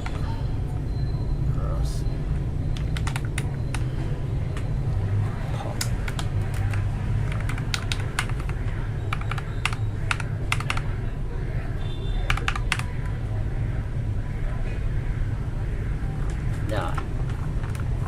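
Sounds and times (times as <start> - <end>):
mechanical keyboard clicking: 2.7 - 3.8, 5.8 - 10.9, 12.3 - 12.9.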